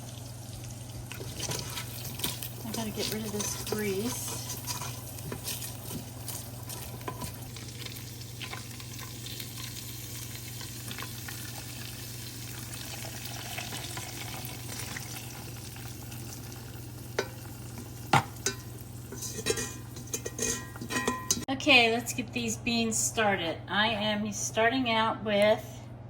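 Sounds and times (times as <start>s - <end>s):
grease sizzling in a frying pan: 0.0s - 21.5s
utensils knocking against pan: 18.1s - 21.5s.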